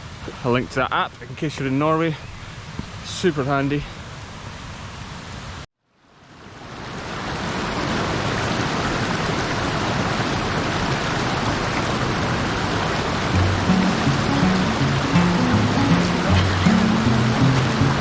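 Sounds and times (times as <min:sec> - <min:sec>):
mountain stream rushing: 0:07.4 - 0:18.0.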